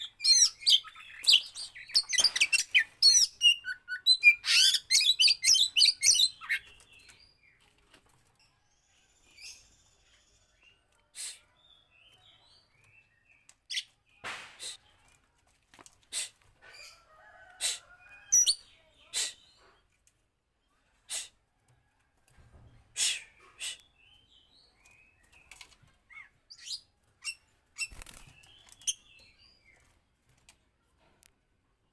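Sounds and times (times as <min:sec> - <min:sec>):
bird chirping and whistling: 0:00.0 - 0:06.6.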